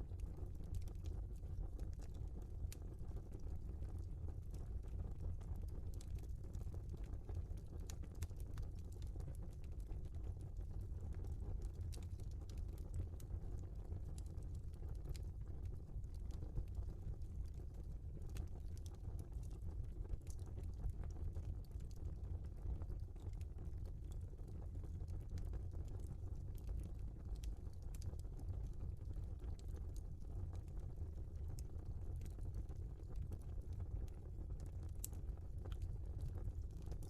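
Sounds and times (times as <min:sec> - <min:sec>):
low rumble of burning logs: 0:00.0 - 0:37.0
wood fire crackling: 0:17.4 - 0:37.0.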